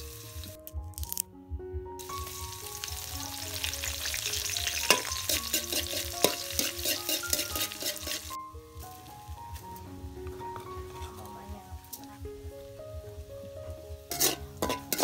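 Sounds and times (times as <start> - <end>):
food sizzling in hot oil: 0.0 - 1.2, 2.0 - 9.1, 13.9 - 15.0
background music: 0.0 - 15.0.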